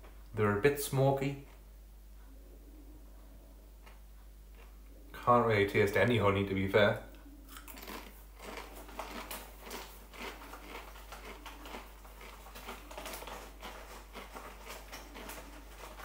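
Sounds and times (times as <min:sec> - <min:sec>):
person chewing crisps: 0:03.8 - 0:04.8, 0:07.5 - 0:16.0.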